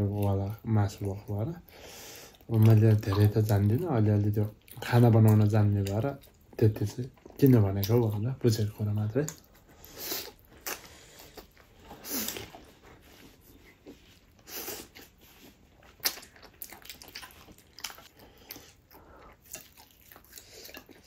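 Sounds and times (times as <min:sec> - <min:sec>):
person chewing and biting: 0:09.2 - 0:21.0.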